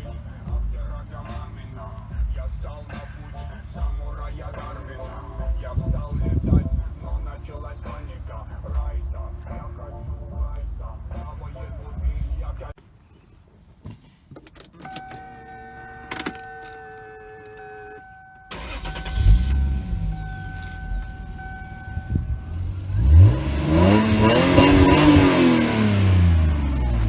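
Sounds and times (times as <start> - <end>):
car engine starting and idling: 0.0 - 12.8, 14.4 - 27.0
clicks: 14.3 - 22.4
engine revving: 18.5 - 27.0
electronic chime tone: 19.5 - 22.8.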